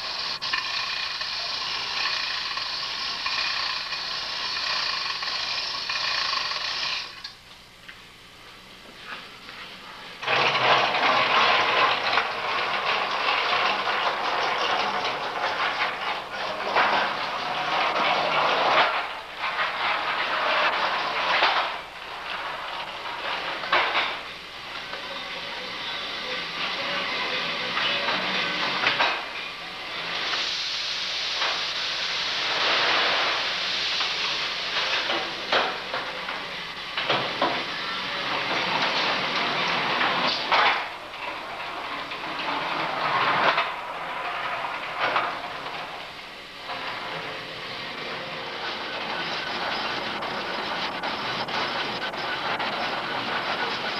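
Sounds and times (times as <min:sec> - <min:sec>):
steam hissing rush: 0:00.0 - 0:07.3, 0:25.6 - 0:41.0, 0:44.7 - 0:53.9
low machinery hum: 0:00.0 - 0:53.9.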